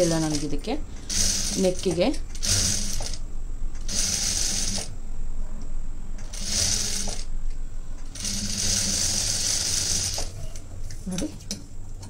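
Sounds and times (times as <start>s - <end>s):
sewing machine stitching: 1.1s - 3.2s, 6.3s - 7.2s, 8.1s - 10.3s.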